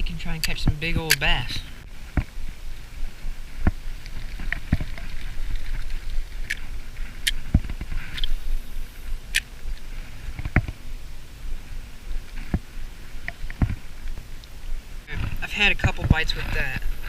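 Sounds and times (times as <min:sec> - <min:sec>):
steady low rumble: 0:00.0 - 0:17.0
sharp clicks: 0:00.3 - 0:01.5.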